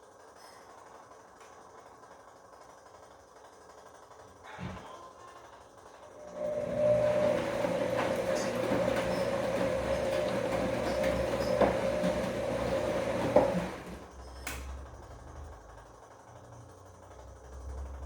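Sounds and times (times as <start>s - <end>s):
washing machine motor whine: 6.0s - 18.0s
laundry knocking in drum: 7.2s - 14.0s.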